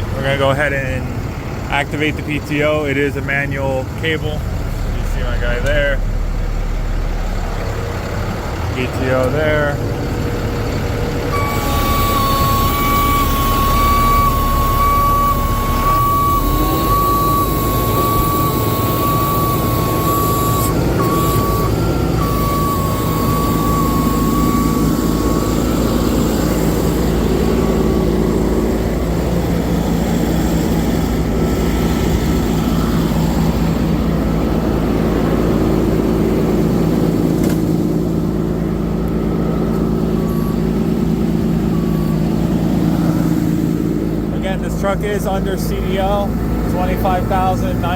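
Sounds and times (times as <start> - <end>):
diesel truck engine running: 0.0 - 47.9
steady high-pitched tone: 11.3 - 28.8.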